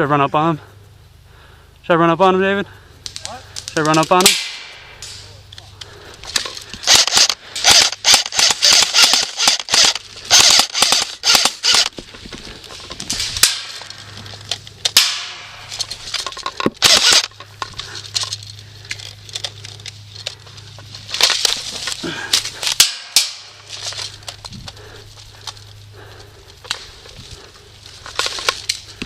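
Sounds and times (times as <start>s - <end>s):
airsoft guns firing: 3.0s - 5.3s, 6.8s - 11.9s, 13.3s - 13.9s, 14.8s - 15.9s, 16.7s - 17.4s, 22.6s - 23.7s.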